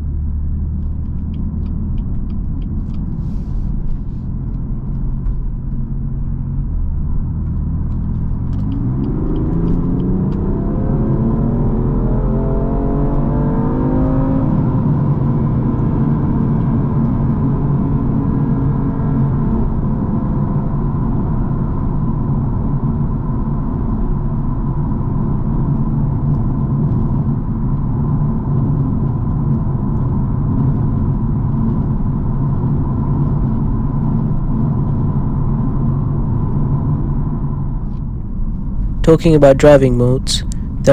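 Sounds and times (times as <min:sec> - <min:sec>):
car engine accelerating: 0:06.5 - 0:14.6.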